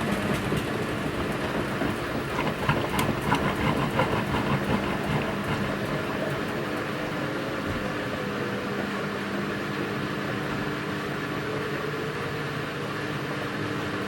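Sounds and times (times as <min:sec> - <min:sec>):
laundry clattering and splashing: 0:00.0 - 0:07.9
washing machine motor hum: 0:00.0 - 0:14.0.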